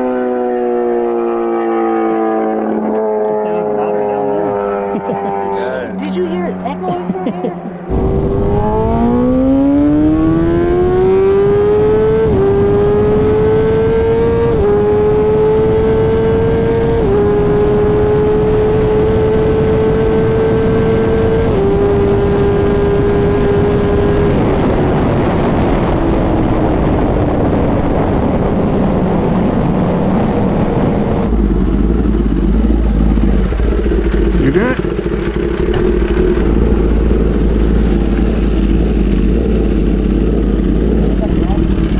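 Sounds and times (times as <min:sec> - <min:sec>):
sportbike engine revving: 0:07.8 - 0:23.5, 0:31.3 - 0:41.9.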